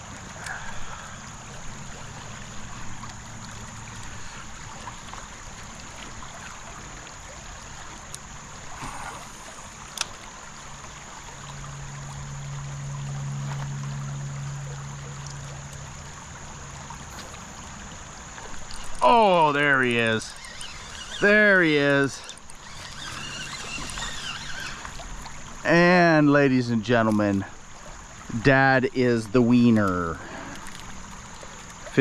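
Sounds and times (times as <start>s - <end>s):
low hum: 0.0s - 25.6s
creek water running: 0.0s - 32.0s.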